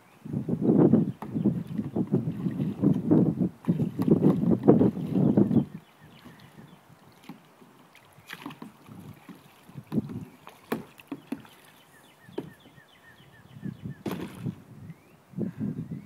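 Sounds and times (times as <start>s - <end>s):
kayak paddle splashing: 1.2s - 13.0s, 14.0s - 14.6s.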